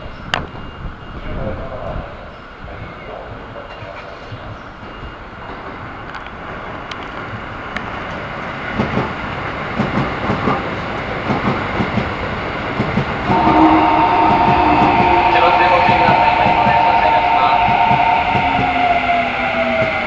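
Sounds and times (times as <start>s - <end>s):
train running noise: 0.6s - 20.0s
station departure bell ringing: 13.2s - 20.0s.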